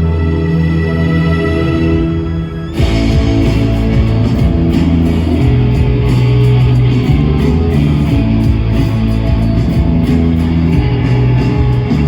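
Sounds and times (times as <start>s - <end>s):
bass and drums: 2.7s - 12.0s
strummed electric guitars: 2.7s - 12.0s
cymbals ticking: 2.8s - 12.0s.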